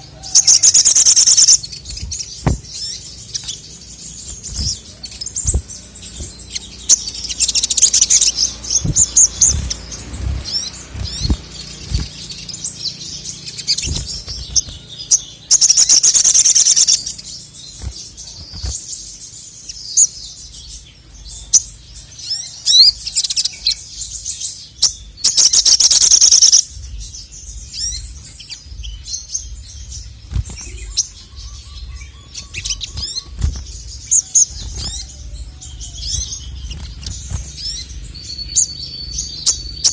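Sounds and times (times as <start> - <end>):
bird chirping and trilling: 0.0 - 39.9
faint low thumps: 1.8 - 2.8.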